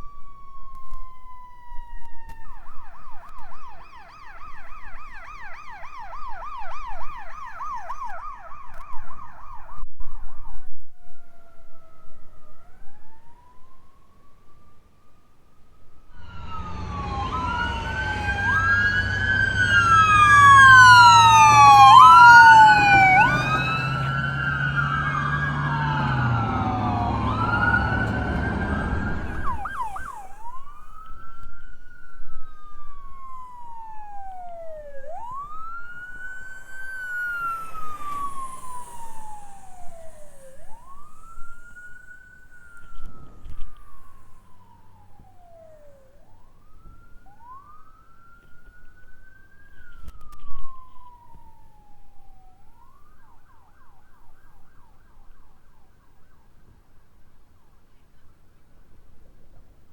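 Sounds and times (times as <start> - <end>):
fast siren yelp: 0.0 - 57.2
emergency sirens wailing: 0.0 - 57.5
low engine drone: 16.2 - 46.0.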